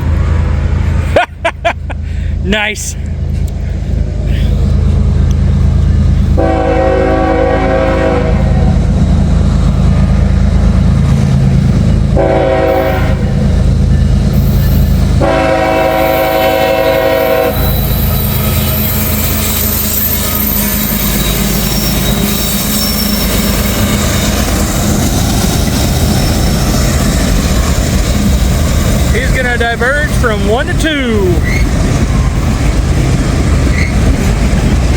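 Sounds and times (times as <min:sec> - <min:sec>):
locomotive rumble: 0:00.0 - 0:34.9
locomotive horn blasts: 0:06.4 - 0:08.8, 0:12.1 - 0:13.4, 0:15.2 - 0:17.8
wheel squeal: 0:17.5 - 0:27.4, 0:31.4 - 0:32.4, 0:33.6 - 0:34.3
train wheels clickety-clack: 0:17.5 - 0:34.9.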